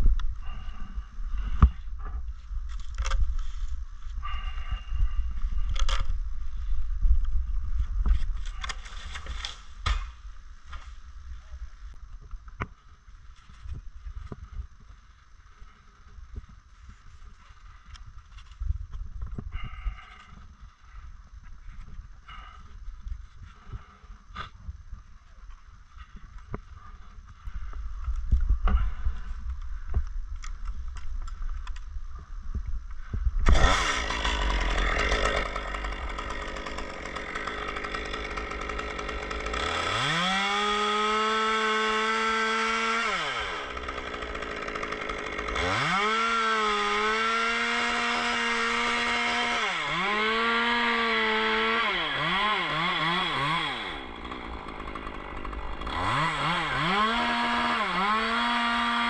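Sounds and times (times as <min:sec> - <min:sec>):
chainsaw revving: 0:33.4 - 0:59.0.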